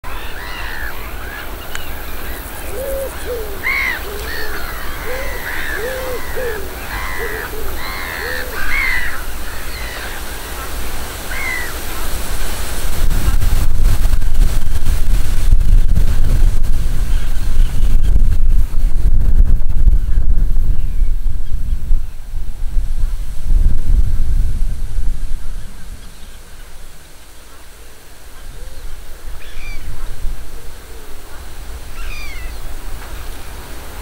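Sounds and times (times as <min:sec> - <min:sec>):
wind rumbling on microphone: 0:00.0 - 0:34.0
arched bird calls: 0:00.1 - 0:10.7, 0:28.4 - 0:29.9, 0:31.3 - 0:32.7.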